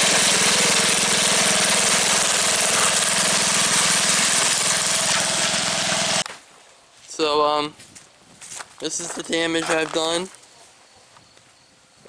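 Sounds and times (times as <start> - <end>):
lawn tractor engine running: 0.0 - 6.2.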